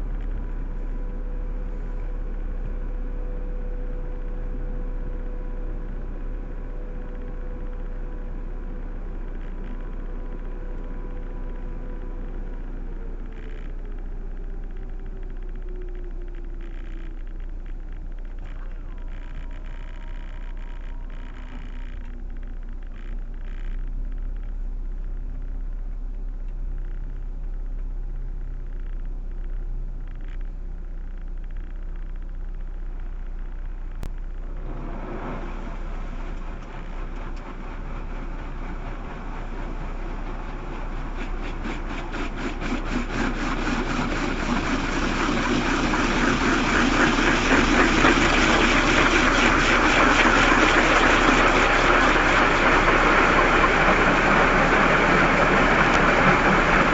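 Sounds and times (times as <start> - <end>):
car engine idling: 0.0 - 56.9
car wash spray rushing: 34.5 - 56.9.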